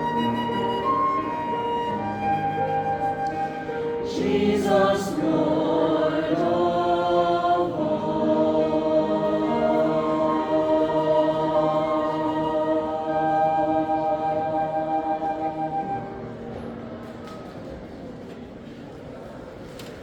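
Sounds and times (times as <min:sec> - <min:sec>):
choir singing held chords: 0:03.9 - 0:15.8.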